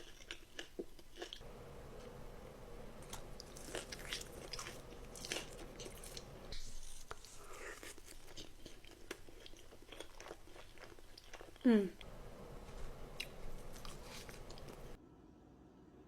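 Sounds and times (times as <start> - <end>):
crunchy chewing: 0.0 - 1.4, 3.0 - 11.6, 13.2 - 15.0.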